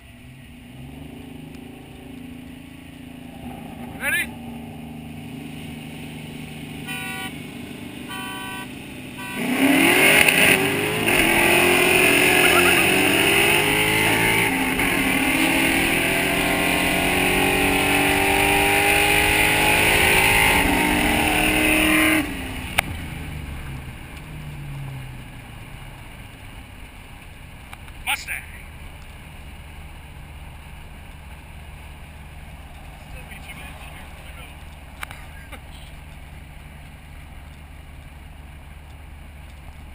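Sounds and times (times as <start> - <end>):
car engine accelerating through gears: 0.0 - 26.4
steady engine drone: 0.0 - 39.9.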